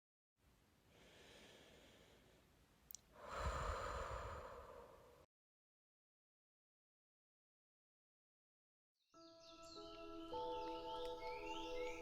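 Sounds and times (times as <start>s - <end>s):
click: 2.9s - 3.1s.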